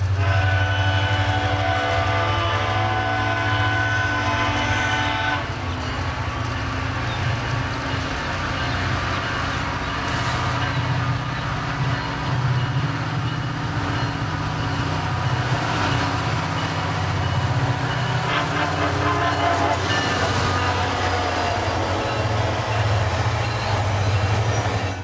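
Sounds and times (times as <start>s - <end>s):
diesel locomotive engine rumble: 0.0s - 25.0s
train horn chord: 0.2s - 5.6s, 17.3s - 21.4s.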